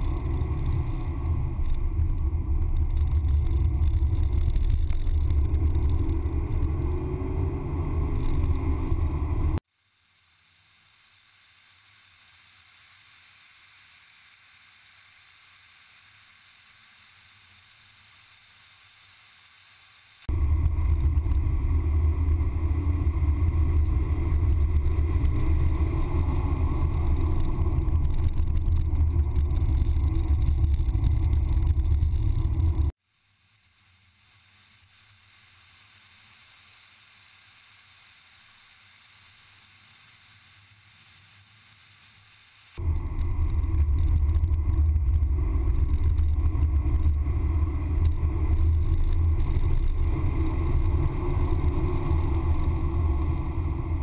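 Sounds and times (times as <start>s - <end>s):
car engine and road noise rumble: 0.0s - 9.6s, 20.3s - 33.0s, 42.8s - 54.0s
faint hiss: 9.5s - 20.6s, 33.0s - 54.0s.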